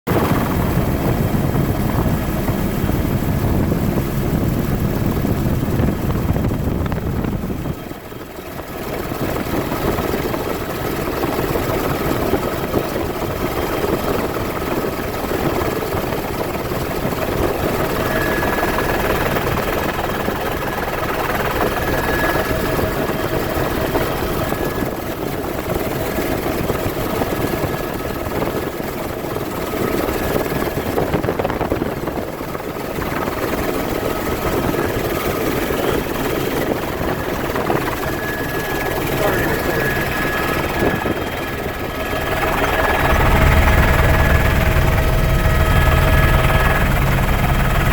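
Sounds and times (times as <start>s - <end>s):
helicopter rotor and engine: 0.1s - 47.9s.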